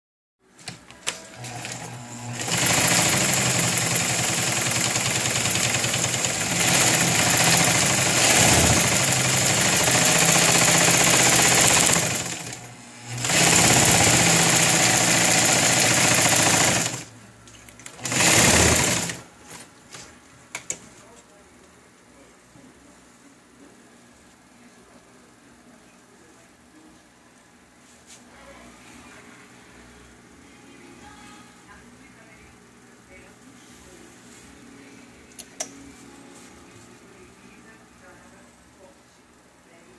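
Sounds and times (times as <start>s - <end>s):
sewing machine running: 1.3s - 17.1s, 17.8s - 19.2s
sewing machine clicks: 1.4s - 17.1s, 17.8s - 19.2s.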